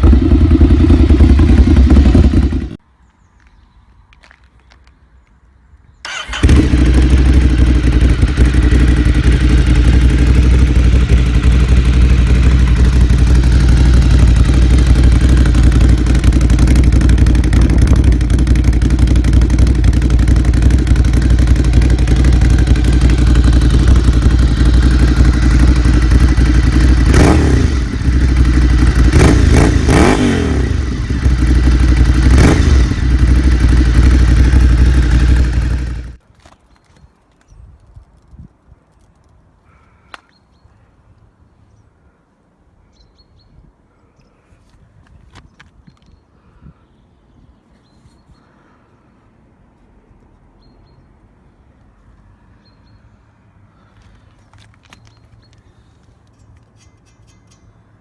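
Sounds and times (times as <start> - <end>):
motorcycle engine idling and revving: 0.0 - 2.8, 6.0 - 36.2.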